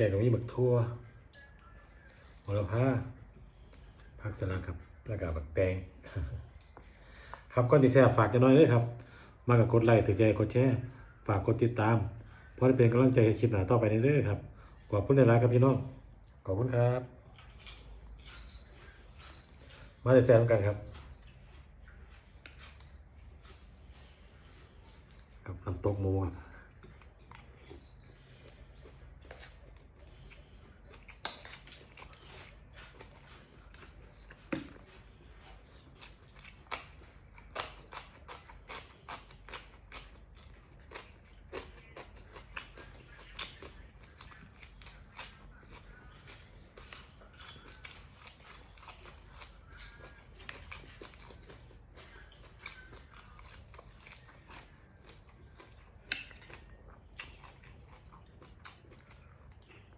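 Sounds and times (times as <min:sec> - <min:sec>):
person chewing crunchy food: 0:17.2 - 0:59.9.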